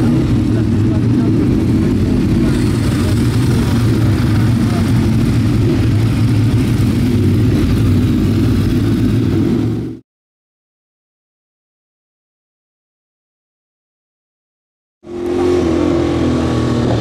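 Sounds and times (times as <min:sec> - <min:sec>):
motorcycle engine running hard: 0:00.0 - 0:10.0, 0:15.0 - 0:17.0.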